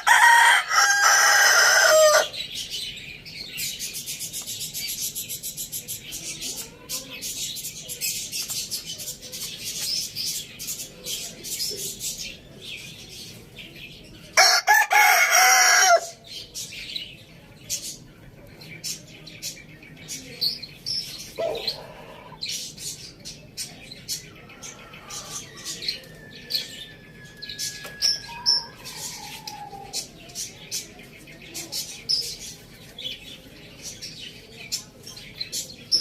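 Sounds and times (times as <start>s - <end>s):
rooster crowing: 0.0s - 2.4s, 14.4s - 16.2s.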